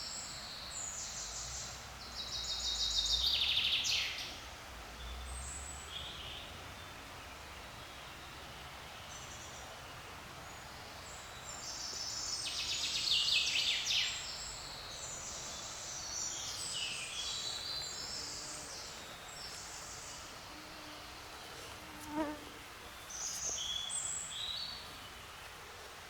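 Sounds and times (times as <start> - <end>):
faint forest background noise: 0.0 - 26.0.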